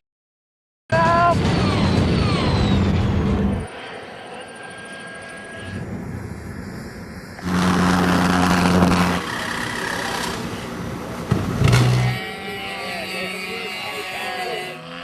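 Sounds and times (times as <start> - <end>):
engine humming: 5.7 - 15.0.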